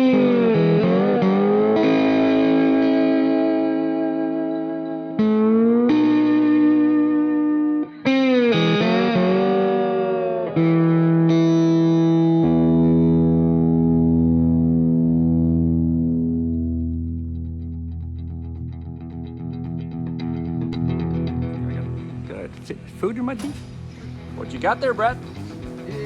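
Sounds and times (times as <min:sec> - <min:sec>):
distorted electric guitar: 0:00.0 - 0:26.0.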